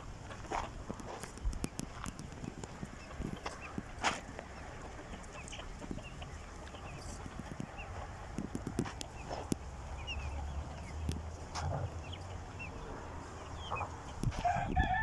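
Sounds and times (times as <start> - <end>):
chickens clucking: 0.0 - 15.0
high peeping chirps: 1.3 - 15.0.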